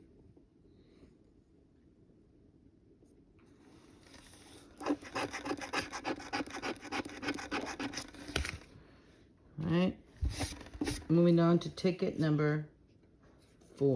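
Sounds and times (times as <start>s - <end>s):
lottery ticket being scratched: 4.8s - 8.3s.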